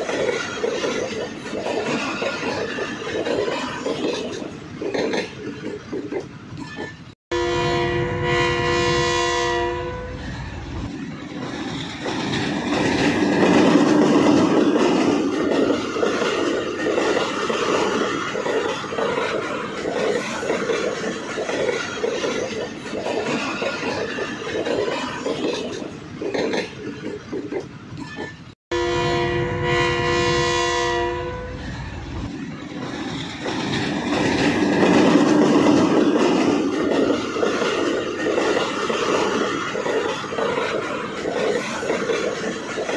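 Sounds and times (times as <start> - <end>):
train wheels clattering over rail joints: 0.0 - 7.2, 10.8 - 28.6, 32.1 - 42.9
locomotive horn: 7.3 - 10.2, 28.7 - 31.6.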